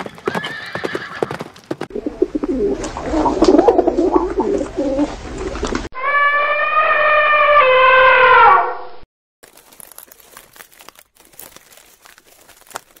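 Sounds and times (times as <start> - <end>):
elephant trumpeting: 6.0 - 8.8
faint crackling and rustling: 9.4 - 13.0.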